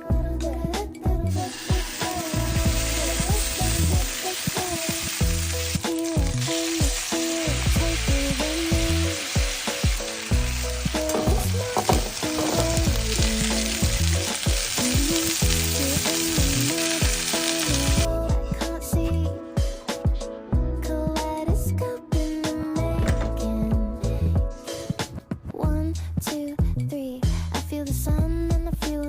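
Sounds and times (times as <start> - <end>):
background music: 0.0 - 29.0
food sizzling in a pan: 1.3 - 18.1.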